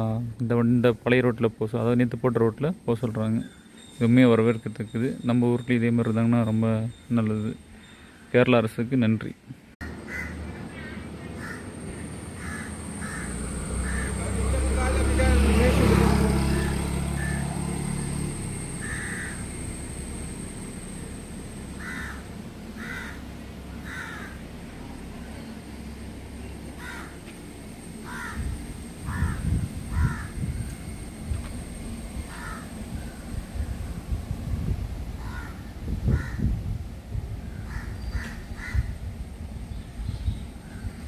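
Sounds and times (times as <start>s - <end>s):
crows cawing: 9.8s - 14.6s, 17.2s - 17.6s, 18.8s - 19.7s, 21.8s - 24.5s, 26.8s - 27.3s, 28.0s - 30.4s, 32.3s - 32.8s, 35.2s - 36.5s, 37.5s - 38.9s
low rumble: 16.2s - 41.0s.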